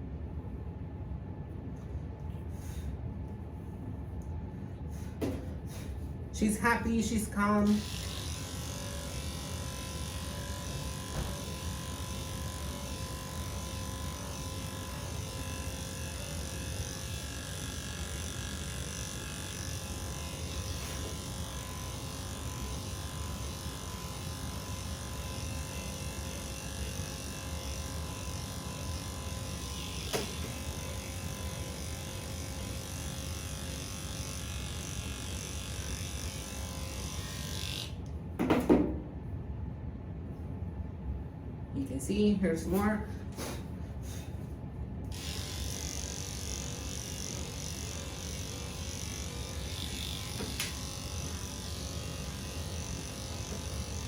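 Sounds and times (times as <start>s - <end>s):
electric clippers humming: 6.4s - 38.7s, 45.0s - 54.0s.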